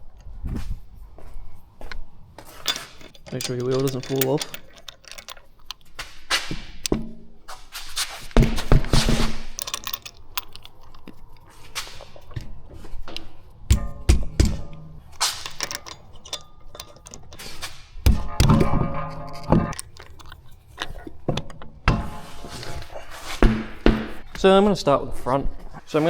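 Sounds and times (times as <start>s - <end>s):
metal tools clattering: 2.4s - 7.2s, 8.2s - 24.5s
ringing metal clank: 13.7s - 17.4s, 18.1s - 19.9s.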